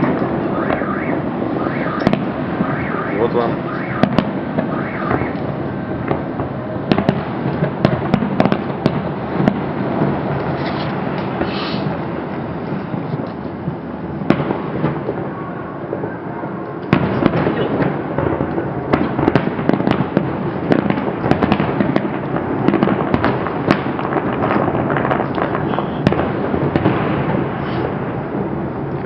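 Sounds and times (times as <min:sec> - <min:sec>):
continuous rumble: 0:00.0 - 0:29.0
fireworks bangs and crackles: 0:00.0 - 0:29.0.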